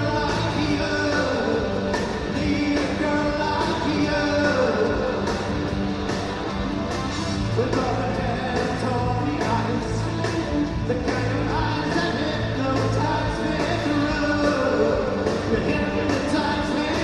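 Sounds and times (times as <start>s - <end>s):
lead vocal singing: 0.0s - 5.6s, 7.5s - 17.0s
bass line: 0.0s - 17.0s
drums: 0.0s - 17.0s.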